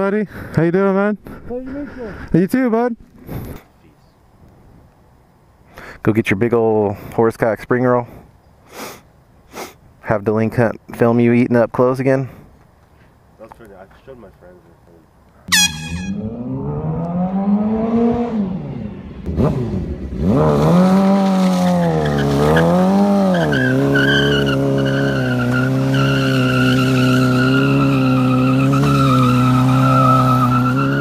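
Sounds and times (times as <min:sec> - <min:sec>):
motorcycle engine revving: 0:15.5 - 0:31.0.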